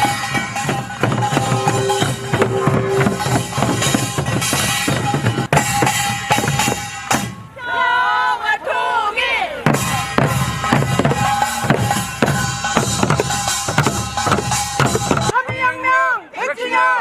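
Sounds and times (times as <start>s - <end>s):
voices calling out: 0.0s - 6.0s
held tone: 0.0s - 6.7s
drums beaten in fast rhythm: 0.0s - 7.6s, 9.6s - 15.7s.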